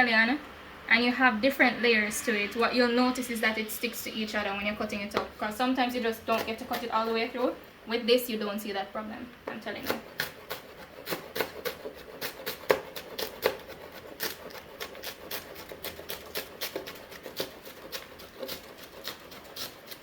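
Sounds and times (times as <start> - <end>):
knife chopping on cutting board: 6.3 - 7.2, 9.5 - 20.0.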